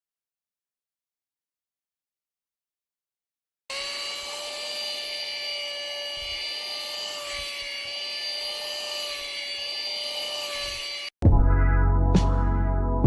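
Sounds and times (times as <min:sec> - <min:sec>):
handheld vacuum cleaner whine: 0:03.7 - 0:11.2.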